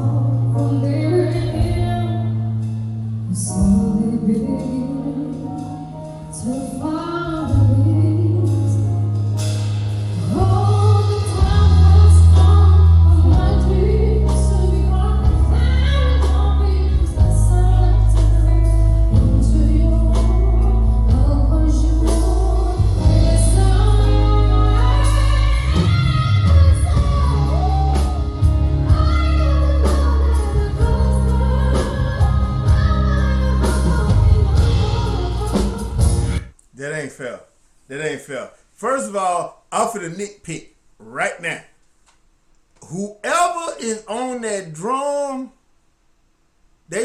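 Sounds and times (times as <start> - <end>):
woman singing: 0.0 - 2.7, 3.3 - 9.1, 10.2 - 36.5.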